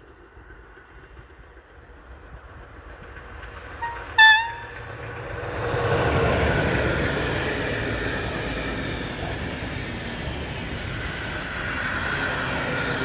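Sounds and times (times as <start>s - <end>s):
train wheels rumbling on rails: 0.0s - 13.0s
locomotive horn blast: 3.8s - 4.8s.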